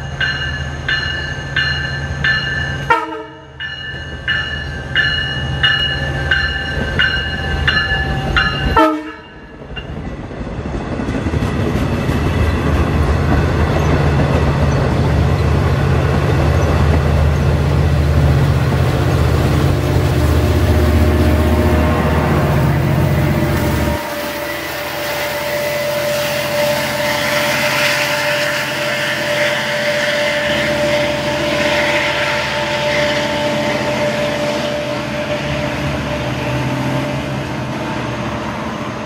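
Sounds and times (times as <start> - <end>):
crossing bell ringing: 0.0 - 10.0
diesel train passing: 0.0 - 39.0
short sharp horn blast: 2.9 - 3.6, 8.7 - 9.4, 23.5 - 27.2.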